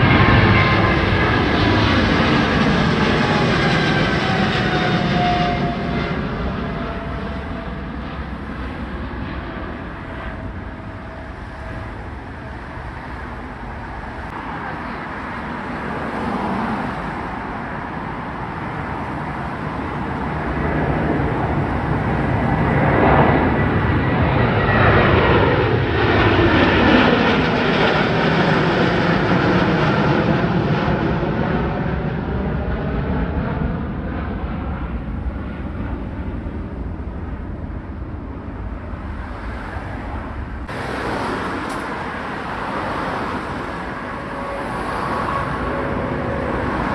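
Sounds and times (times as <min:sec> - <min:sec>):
jet airliner taking off: 0:00.0 - 0:46.9.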